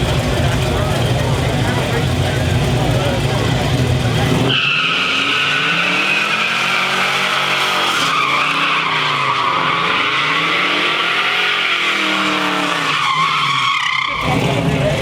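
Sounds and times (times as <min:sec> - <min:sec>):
engine revving hard: 0:00.0 - 0:15.0
tyres squealing: 0:04.3 - 0:14.9.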